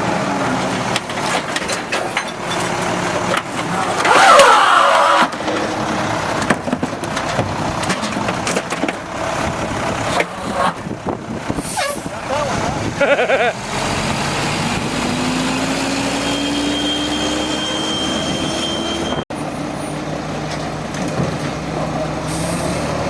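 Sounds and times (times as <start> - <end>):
diesel engine running: 0.0 - 23.0
knocks and clatter: 0.8 - 4.4, 5.2 - 11.6
pitch-gliding squeal: 15.2 - 20.0.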